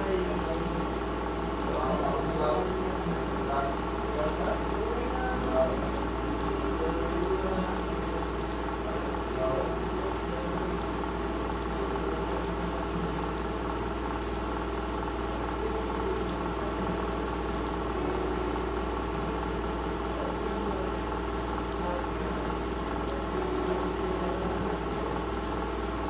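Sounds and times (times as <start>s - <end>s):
steady machine hum: 0.0s - 26.0s
computer mouse clicks: 0.4s - 0.6s, 1.6s - 1.8s, 7.1s - 8.7s, 10.1s - 12.6s, 13.2s - 13.5s, 14.2s - 14.5s, 16.2s - 16.4s, 17.5s - 17.8s, 21.6s - 21.8s, 25.3s - 25.8s.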